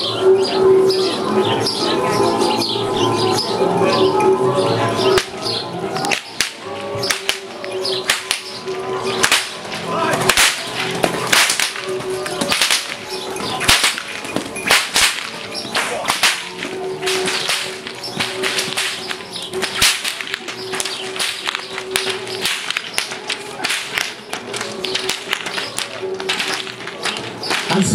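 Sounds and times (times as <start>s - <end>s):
whips cracking: 5.2s - 5.4s, 6.0s - 8.6s, 9.2s - 27.9s.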